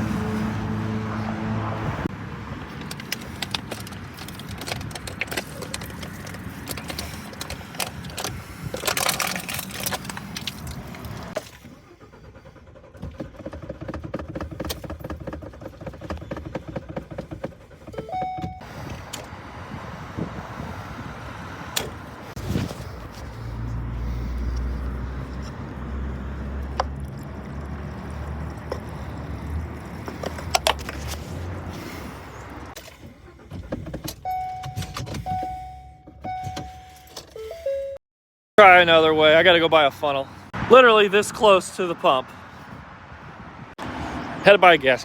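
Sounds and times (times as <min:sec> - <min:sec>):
road and traffic noise: 0:00.0 - 0:38.0, 0:38.6 - 0:45.0
short electronic beep: 0:18.0 - 0:18.7, 0:34.3 - 0:38.0.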